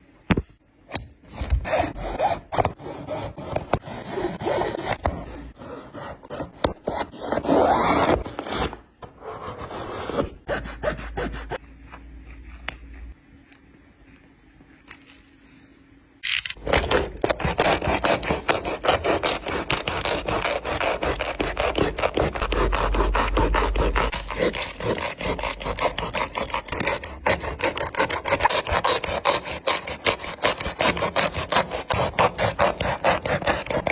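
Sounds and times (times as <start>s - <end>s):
shoe being cut and torn: 16.2s - 33.9s
tool rasping: 16.6s - 33.9s.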